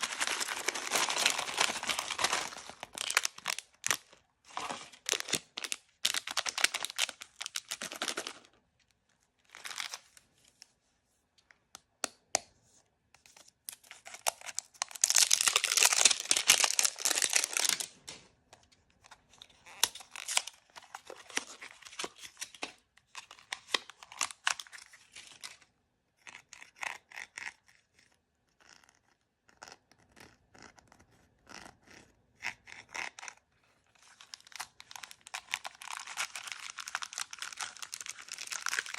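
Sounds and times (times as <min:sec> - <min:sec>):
packaging being torn and crinkled: 0:00.0 - 0:08.5, 0:09.5 - 0:10.2, 0:13.7 - 0:18.2, 0:19.5 - 0:25.6, 0:34.0 - 0:38.9.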